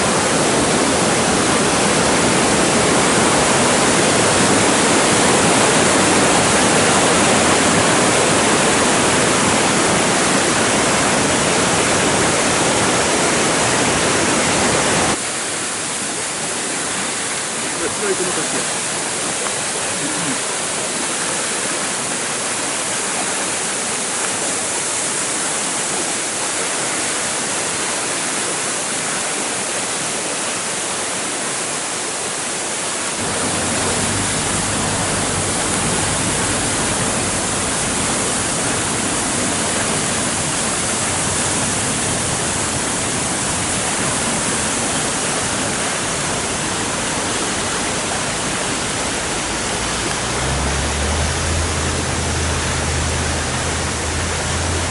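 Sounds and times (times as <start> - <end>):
rushing stream water: 0.0 - 54.9
deep rumble: 33.2 - 39.5, 48.7 - 54.9.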